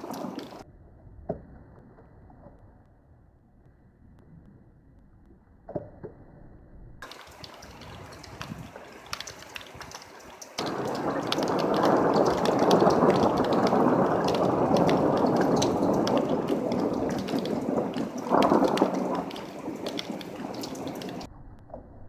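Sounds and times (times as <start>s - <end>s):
heavy rain: 0.0s - 0.6s, 7.0s - 21.3s
thunder rumbling: 0.0s - 0.6s, 7.0s - 21.3s.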